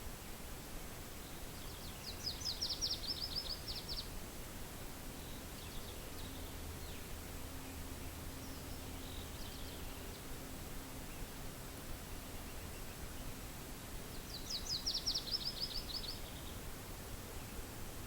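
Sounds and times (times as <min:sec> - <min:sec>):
low wind hiss: 0:00.0 - 0:18.0
songbird trilling: 0:01.8 - 0:04.1, 0:14.3 - 0:16.5.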